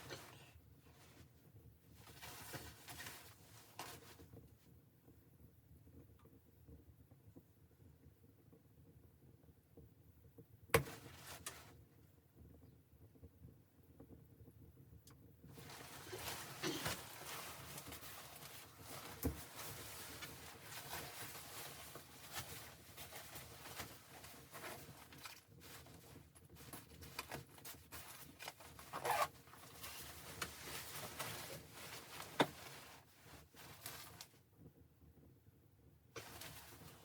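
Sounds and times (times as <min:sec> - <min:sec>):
rustling of gear or clothing: 0:02.0 - 0:04.2, 0:15.5 - 0:34.4, 0:36.2 - 0:37.0.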